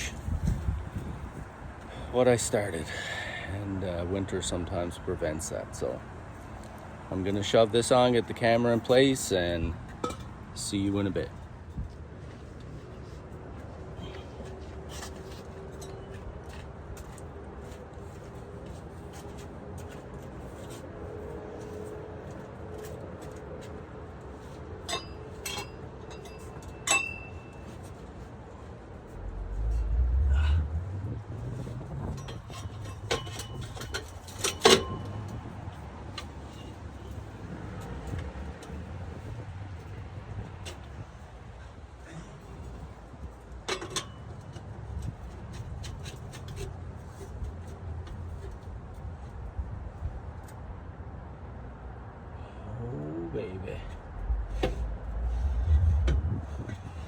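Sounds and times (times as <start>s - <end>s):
metal pipe clicks and scrapes: 9.9s - 10.4s, 24.8s - 28.1s, 29.1s - 35.5s, 43.5s - 48.6s, 53.9s - 57.0s
metal pipe clinking: 10.0s - 10.3s, 24.9s - 27.8s
low steady rumble: 28.8s - 34.3s, 52.8s - 57.0s.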